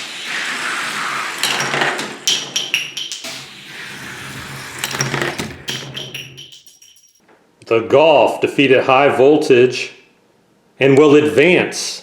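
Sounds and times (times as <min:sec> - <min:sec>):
sharp clacks and clinks: 0:01.4 - 0:03.8, 0:04.8 - 0:07.2.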